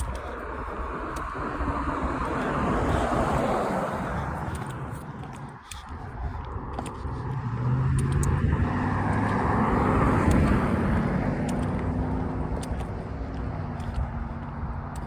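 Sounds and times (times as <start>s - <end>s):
car driving past: 6.7s - 13.8s.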